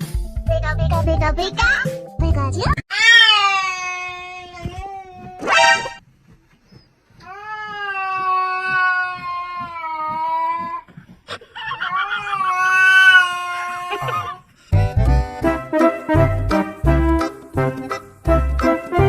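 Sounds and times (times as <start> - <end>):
cat yowling: 2.9 - 6.0, 7.3 - 10.8, 11.6 - 14.4.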